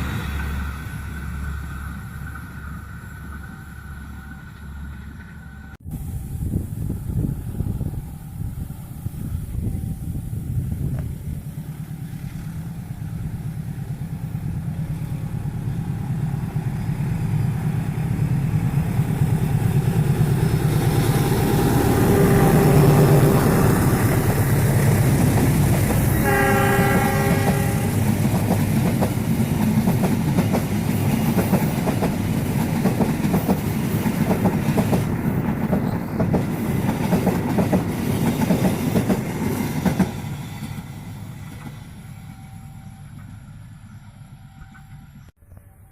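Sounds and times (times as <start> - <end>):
locomotive engine rumble: 0.0 - 45.9
train horn blast: 21.1 - 24.4, 26.0 - 28.2.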